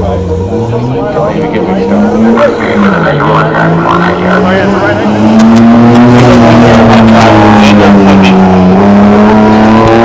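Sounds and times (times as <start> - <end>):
car engine at high revs: 0.0 - 10.0.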